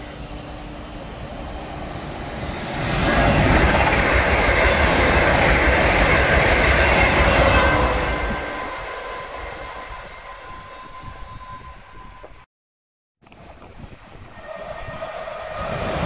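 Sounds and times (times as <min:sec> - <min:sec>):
train wheels rushing on rail: 0:00.0 - 0:12.4, 0:14.1 - 0:16.0.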